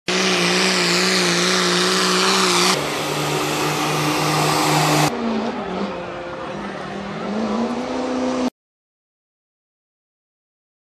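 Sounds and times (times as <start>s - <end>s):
truck engines revving high: 0.0s - 8.5s
high engine whine: 0.1s - 8.5s.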